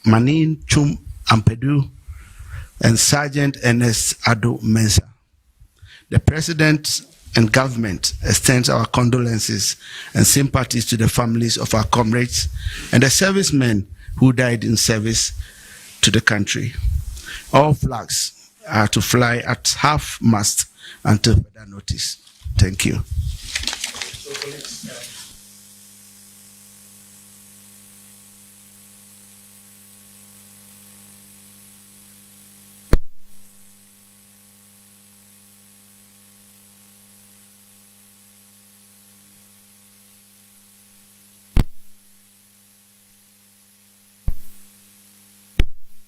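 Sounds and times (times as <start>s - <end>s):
electrical hum: 0.0s - 46.0s
faint hiss: 5.6s - 36.8s.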